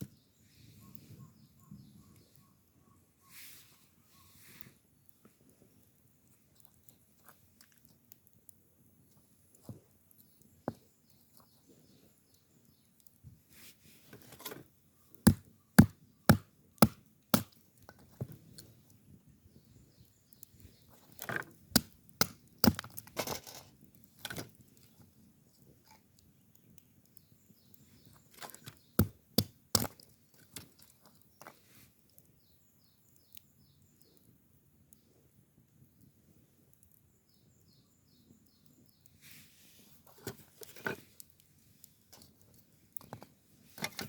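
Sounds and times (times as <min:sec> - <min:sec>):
firewood being chopped: 0:15.2 - 0:18.4, 0:21.1 - 0:23.6, 0:28.4 - 0:30.7.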